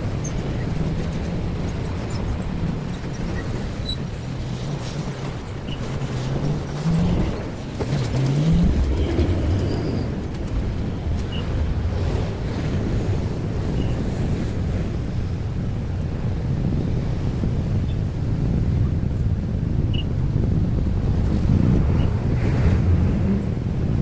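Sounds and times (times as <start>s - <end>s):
vehicle engine humming: 0.0s - 15.0s
traffic rumble: 0.0s - 24.0s.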